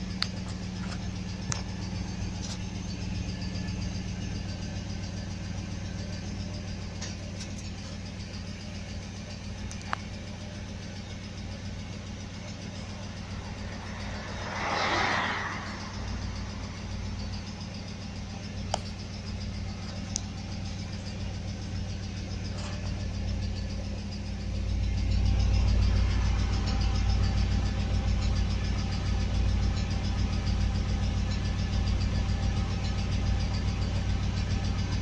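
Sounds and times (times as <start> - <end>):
car engine idling: 0.0 - 35.0
brief rushing noise: 12.8 - 17.8.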